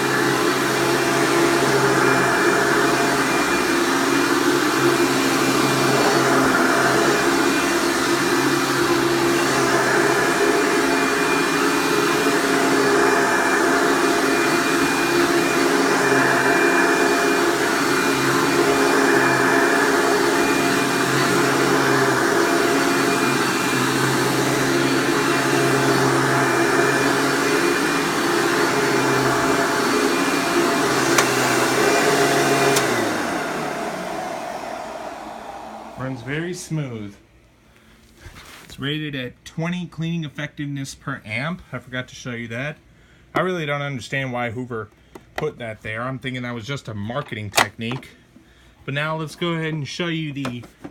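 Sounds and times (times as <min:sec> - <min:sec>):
vacuum cleaner running: 0:00.0 - 0:37.1
motor winding down: 0:12.2 - 0:36.6.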